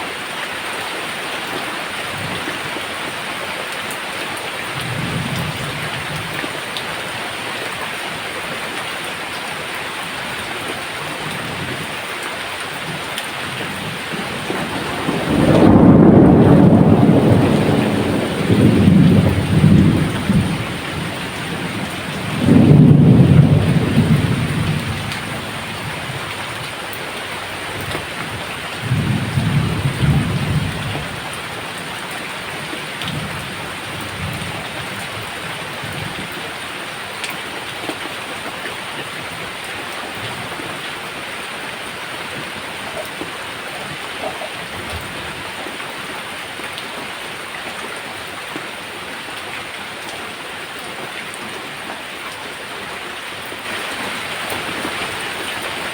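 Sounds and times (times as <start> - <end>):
steady rain: 0.0 - 55.9
rolling thunder: 13.8 - 26.2, 28.8 - 31.3.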